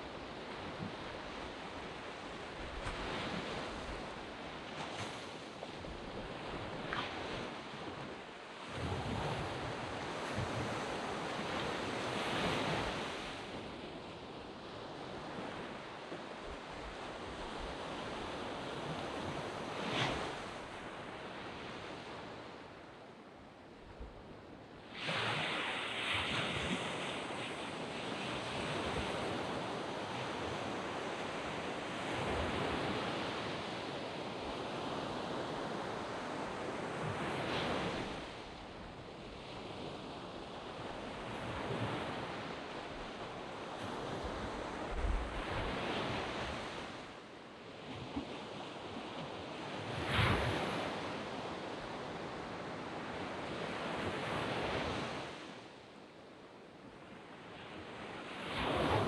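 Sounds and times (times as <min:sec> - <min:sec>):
sea waves breaking on beach: 0:24.9 - 0:47.2, 0:48.0 - 0:55.6.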